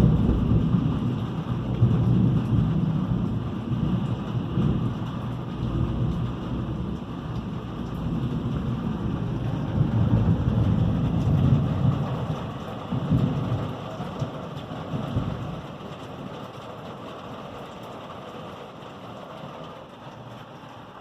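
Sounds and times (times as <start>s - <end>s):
rolling thunder: 0.0s - 15.9s
steady rain: 0.0s - 21.0s.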